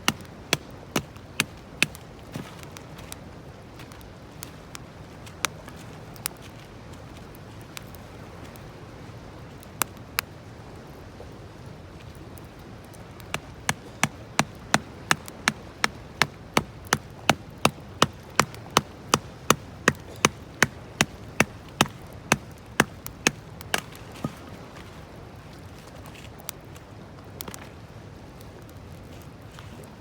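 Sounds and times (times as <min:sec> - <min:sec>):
sharp knocks: 0:13.7 - 0:24.4.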